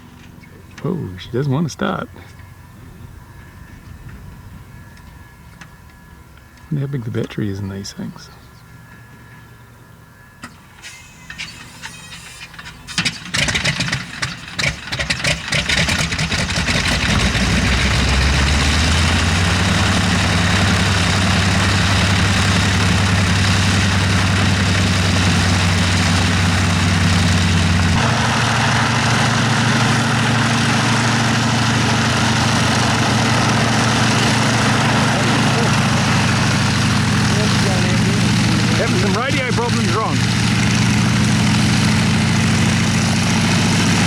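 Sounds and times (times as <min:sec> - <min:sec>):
radial engine sputtering and idling: 0:10.4 - 0:44.0.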